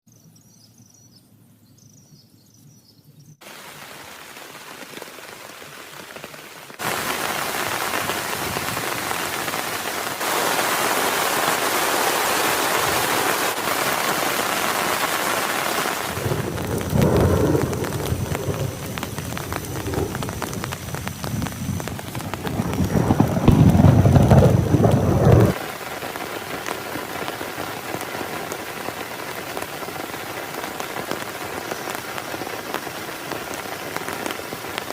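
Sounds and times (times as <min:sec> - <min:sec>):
heavy rain falling: 0:03.4 - 0:34.9
thunder rumbling: 0:06.8 - 0:25.6.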